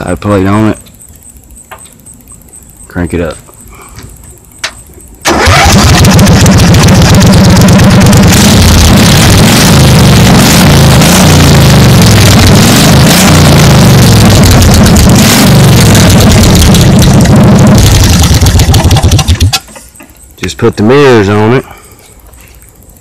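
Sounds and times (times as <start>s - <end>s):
engine starting and revving: 5.2s - 19.7s.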